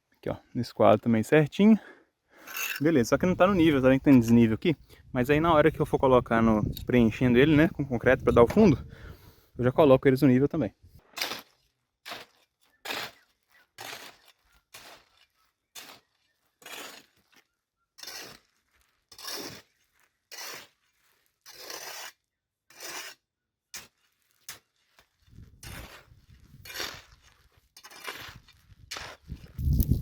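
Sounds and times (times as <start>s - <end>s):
shovel scraping concrete mix: 2.4s - 4.5s, 11.0s - 30.0s.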